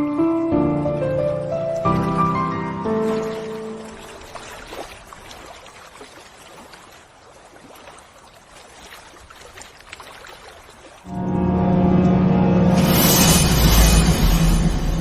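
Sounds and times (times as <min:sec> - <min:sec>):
water running and trickling: 0:00.0 - 0:11.1.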